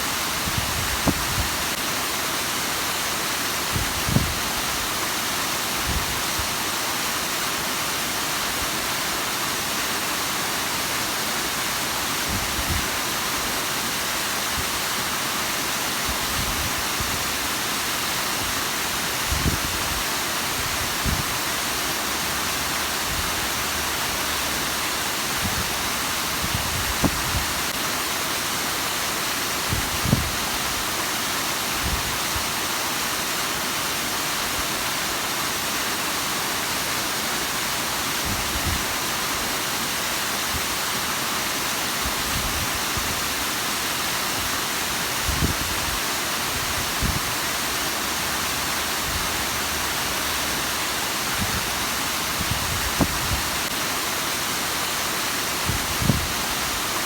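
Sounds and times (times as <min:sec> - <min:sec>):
waterfall splashing: 0:00.0 - 0:57.0.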